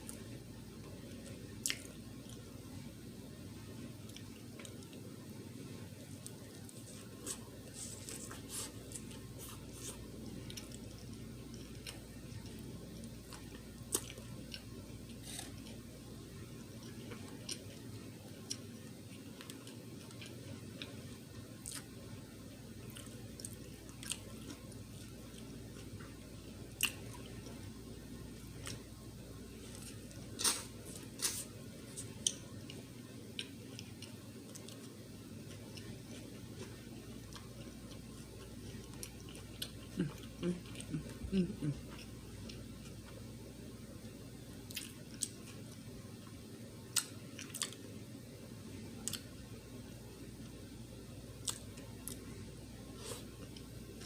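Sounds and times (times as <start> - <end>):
steady low hum: 0.0 - 54.0
person chewing: 6.2 - 15.8, 16.7 - 21.9, 22.8 - 27.6, 28.4 - 28.9, 29.6 - 43.2, 44.6 - 45.8, 46.9 - 47.8, 49.0 - 49.3, 51.4 - 52.3.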